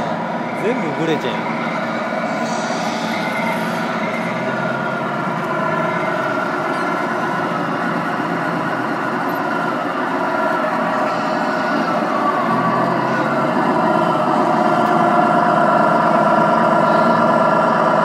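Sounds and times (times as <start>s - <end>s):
diesel truck engine idling: 0.0s - 18.0s.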